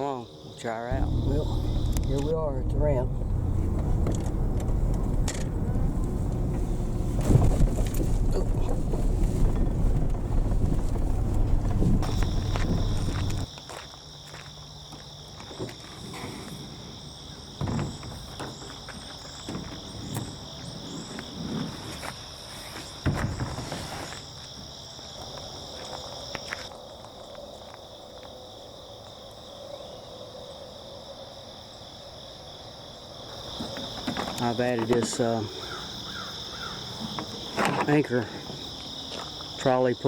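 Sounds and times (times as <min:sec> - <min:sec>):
insect chorus: 0:00.0 - 0:40.0
thump: 0:17.6 - 0:18.6, 0:23.0 - 0:24.0.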